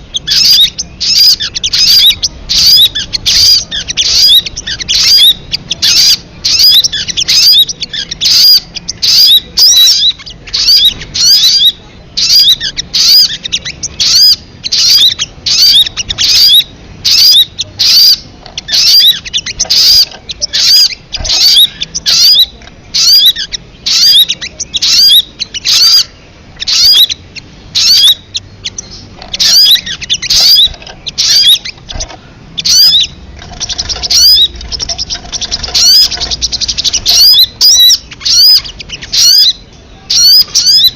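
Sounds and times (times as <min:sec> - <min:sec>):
bird chattering call: 0:00.0 - 0:40.9.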